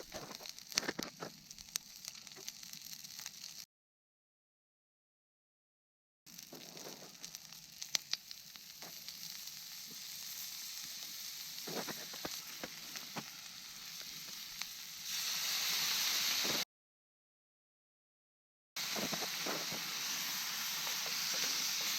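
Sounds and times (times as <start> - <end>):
chicken deep-frying in hot oil: 0.0 - 3.7, 6.3 - 16.7, 18.8 - 21.9.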